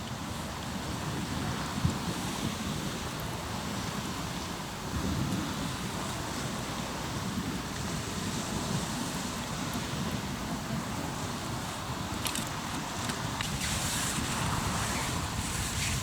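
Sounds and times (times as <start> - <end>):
waves washing on shore: 0.0 - 16.0
wind on microphone: 0.0 - 16.0
campfire crackling: 9.4 - 16.0.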